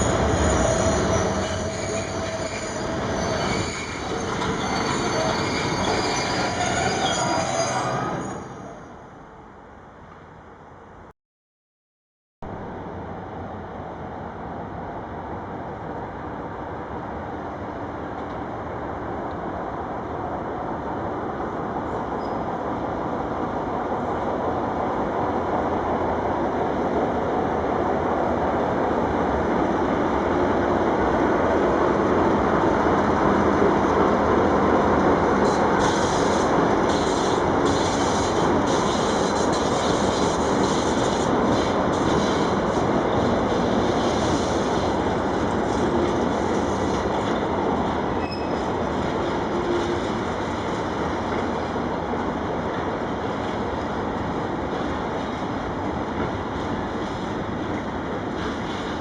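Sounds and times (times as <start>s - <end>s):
high-pitched wheel squeal on rail: 0.0s - 9.0s, 22.2s - 22.5s, 35.4s - 42.8s, 48.2s - 50.2s
freight train rumbling past: 0.0s - 9.7s, 12.6s - 59.0s.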